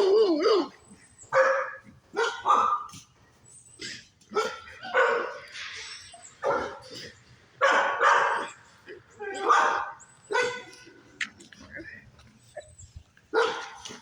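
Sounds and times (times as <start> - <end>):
dog barking loudly: 1.3 - 3.0, 4.3 - 5.5, 6.4 - 7.0, 7.6 - 8.6, 9.2 - 10.9, 13.3 - 14.0.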